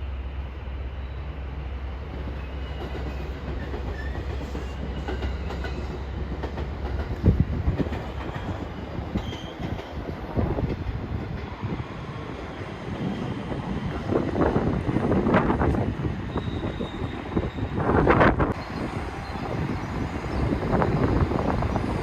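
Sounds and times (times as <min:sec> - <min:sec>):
train rumbling on rails: 0:00.0 - 0:22.0
faint wheel squeal: 0:16.3 - 0:17.8.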